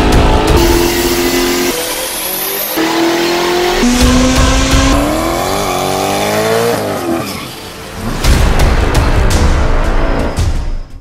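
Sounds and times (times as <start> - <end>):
high-revving car engines: 0.0 - 8.2.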